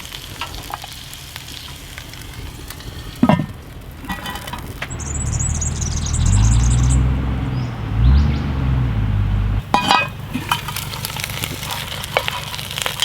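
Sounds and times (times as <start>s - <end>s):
meat sizzling in a pot: 0.0s - 4.9s, 9.6s - 13.0s
vehicle engine rumble: 0.0s - 13.0s
small bird chirping trill: 4.9s - 9.6s.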